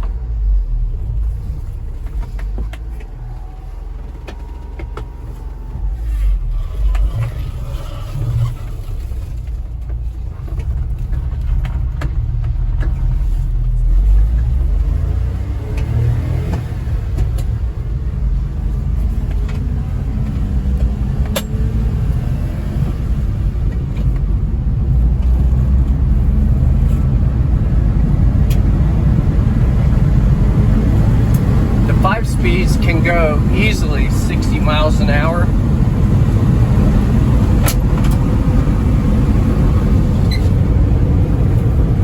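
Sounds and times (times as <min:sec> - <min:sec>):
road noise: 0:00.0 - 0:42.0
small truck engine rumble: 0:00.0 - 0:42.0.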